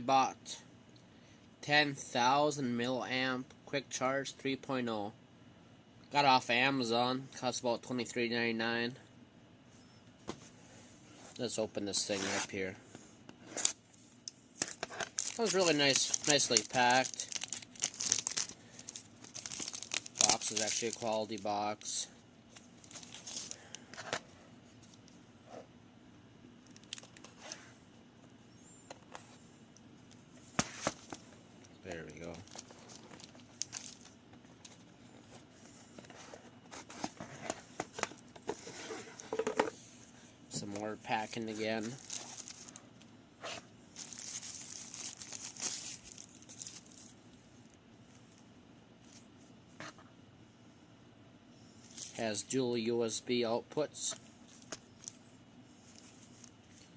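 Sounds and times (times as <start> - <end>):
packing material crinkling: 14.6 - 21.9, 22.6 - 23.8, 26.6 - 27.6, 32.4 - 34.8, 41.2 - 42.8, 44.0 - 47.1.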